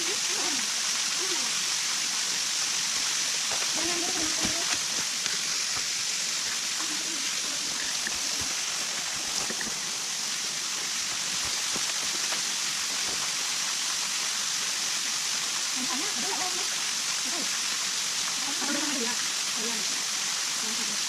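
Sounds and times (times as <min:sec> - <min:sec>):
water rushing: 0:00.0 - 0:21.0
faint voices: 0:06.7 - 0:08.6.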